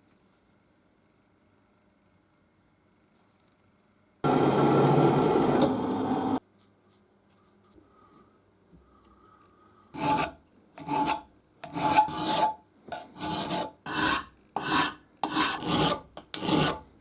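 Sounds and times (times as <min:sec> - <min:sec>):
file scraping on steel: 0:09.9 - 0:16.9.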